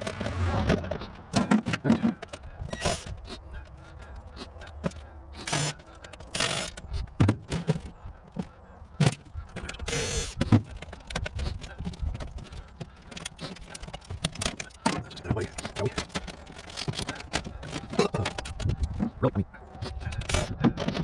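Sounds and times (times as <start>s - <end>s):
objects knocking and clattering: 0.0s - 3.1s, 7.1s - 21.0s
scraping or rustling: 0.0s - 3.5s.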